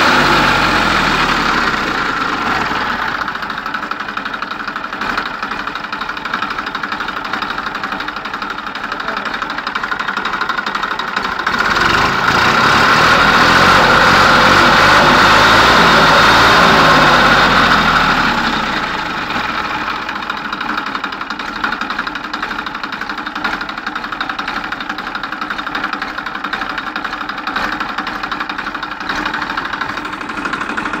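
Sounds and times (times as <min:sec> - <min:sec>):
tractor diesel engine revving: 0:00.0 - 0:31.0.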